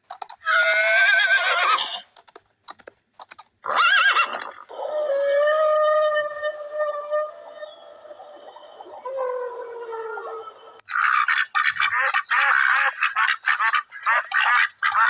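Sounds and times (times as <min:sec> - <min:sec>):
sharp clicks: 0:00.0 - 0:04.7
long steady animal call: 0:03.6 - 0:15.0.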